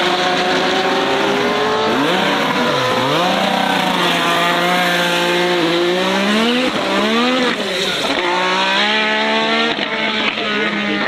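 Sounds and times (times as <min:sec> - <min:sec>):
racing car engine revving: 0:00.0 - 0:11.0.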